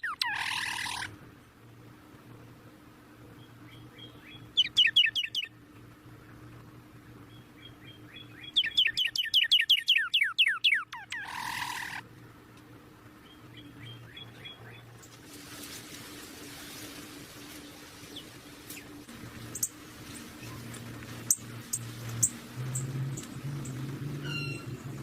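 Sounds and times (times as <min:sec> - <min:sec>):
harsh bird rasp: 0:00.0 - 0:01.1, 0:11.0 - 0:12.0
bird chirping falling notes: 0:03.7 - 0:05.5, 0:18.1 - 0:25.0.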